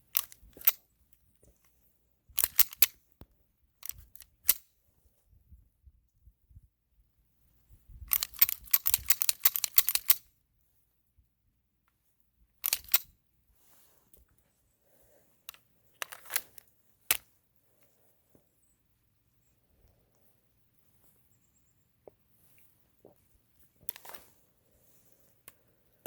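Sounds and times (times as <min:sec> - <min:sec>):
sharp mechanical clicks: 0:00.1 - 0:00.8, 0:02.4 - 0:03.0, 0:03.8 - 0:04.6, 0:08.1 - 0:10.3, 0:12.6 - 0:13.1.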